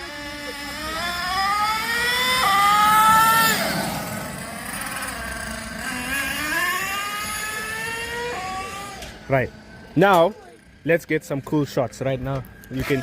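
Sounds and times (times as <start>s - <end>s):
small engine revving: 0.0s - 9.8s, 12.6s - 13.0s.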